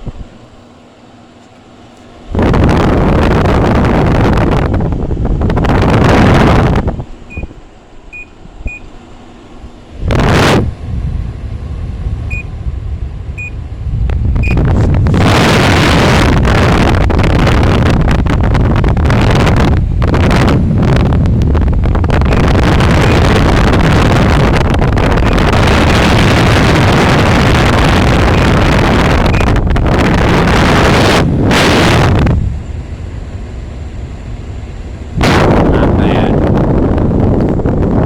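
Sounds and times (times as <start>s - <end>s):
wind noise on microphone: 0.0s - 0.5s, 2.0s - 38.0s
short high beeps: 7.3s - 7.5s, 8.1s - 8.9s, 12.3s - 12.5s, 14.4s - 14.7s, 29.3s - 29.5s.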